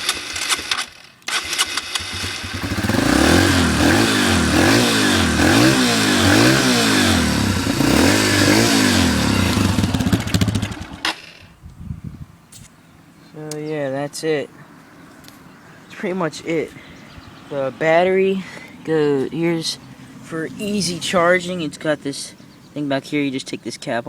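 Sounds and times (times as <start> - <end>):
electric starter cranking engine: 0.0 - 11.4
motorcycle engine revving: 0.0 - 11.5.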